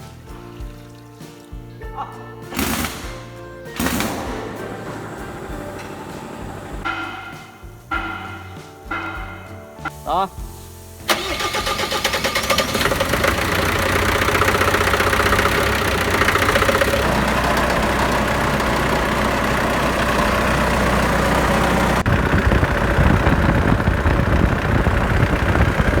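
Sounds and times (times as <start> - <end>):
truck engine idling: 2.6 - 10.0, 11.1 - 26.0.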